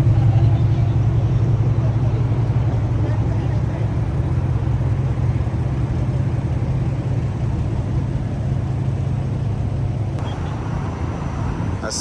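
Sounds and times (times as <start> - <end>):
car engine exhaust rumble: 0.0 - 12.0.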